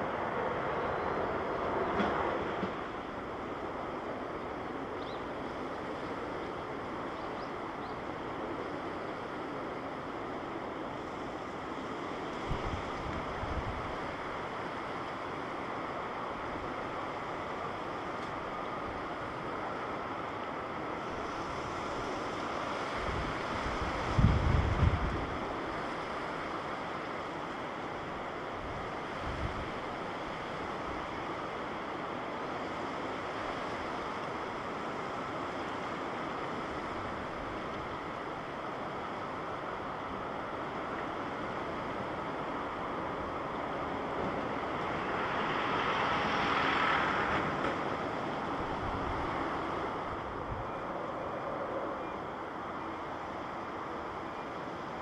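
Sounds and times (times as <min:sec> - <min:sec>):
wind buffeting microphone: 0:23.0 - 0:25.6.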